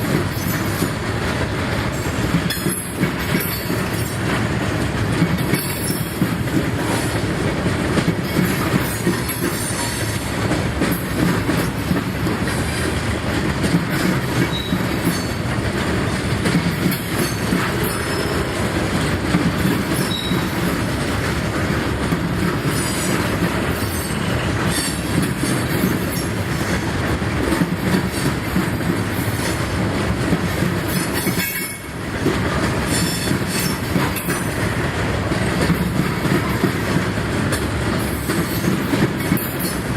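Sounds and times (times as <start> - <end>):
freight train wheels clacking: 0.0 - 39.9
train wheel squeal: 0.2 - 1.0, 2.0 - 4.2, 5.4 - 6.3, 8.2 - 10.3, 14.0 - 15.5, 16.8 - 18.6, 19.6 - 20.8, 22.6 - 26.8, 30.9 - 34.6, 38.0 - 39.9.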